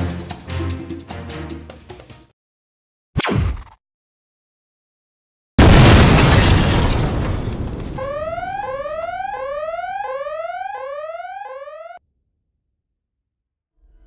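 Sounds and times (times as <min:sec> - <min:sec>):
loud explosion blast: 0:05.6 - 0:08.7
rising electronic alarm tone: 0:08.0 - 0:12.0.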